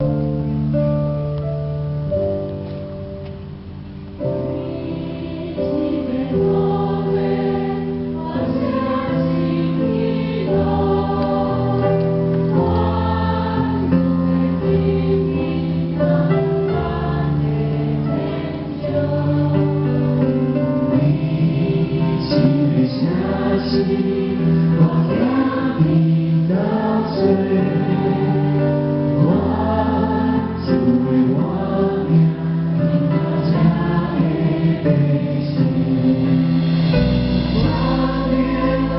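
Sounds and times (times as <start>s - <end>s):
instrumental accompaniment: 0.0s - 38.9s
choir singing gospel song: 4.3s - 38.9s.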